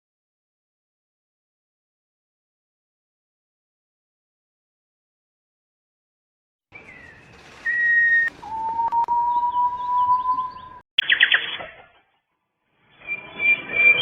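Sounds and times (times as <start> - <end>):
songbird whistling: 6.8 - 11.6, 12.9 - 14.0
fast bird trill: 6.8 - 12.2.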